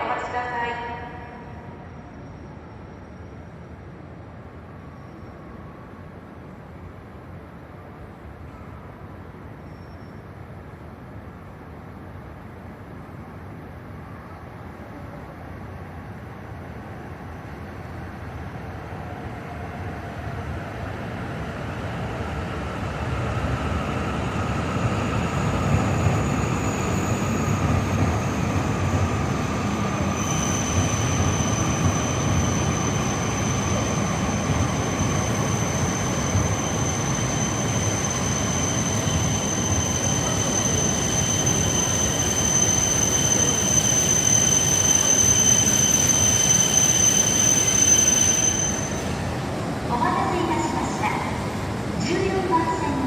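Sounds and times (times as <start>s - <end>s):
train running noise: 16.6s - 53.0s
high-pitched wheel squeal: 30.1s - 49.2s.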